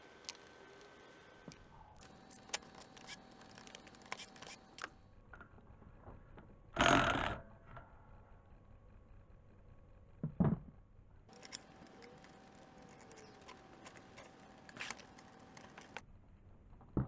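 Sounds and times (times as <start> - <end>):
metal tools clicking and clinking: 1.5 - 4.9, 11.3 - 16.0
loud rasping noise: 2.0 - 4.9.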